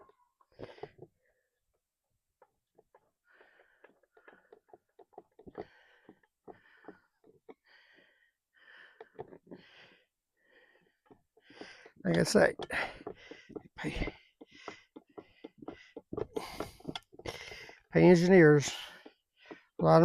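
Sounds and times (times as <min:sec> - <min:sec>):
faint breathing: 0:00.5 - 0:01.7, 0:03.2 - 0:19.8
small clicks of hand work: 0:02.4 - 0:07.6, 0:08.9 - 0:09.6, 0:10.9 - 0:18.0.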